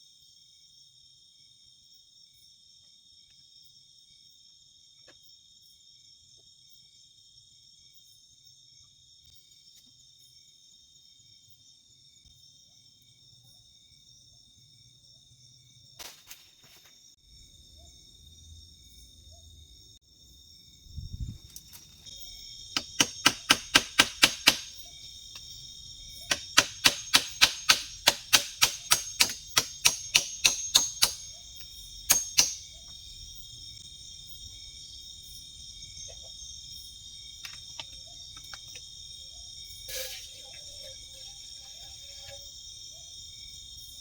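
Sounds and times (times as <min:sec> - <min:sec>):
crickets chirring: 0:00.0 - 0:44.0
sharp hard knocks: 0:22.8 - 0:24.8, 0:26.3 - 0:31.3, 0:32.1 - 0:32.6.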